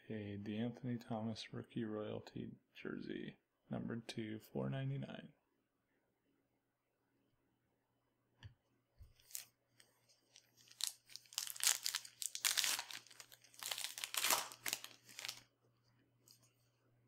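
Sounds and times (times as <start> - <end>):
foil wrapper tearing and crinkling: 9.2 - 9.5, 10.2 - 15.4.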